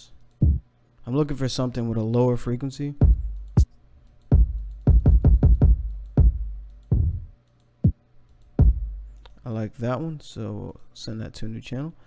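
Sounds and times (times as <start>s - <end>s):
electronic kick drum hits: 0.4s - 0.6s, 3.0s - 3.7s, 4.3s - 7.3s, 8.6s - 9.2s.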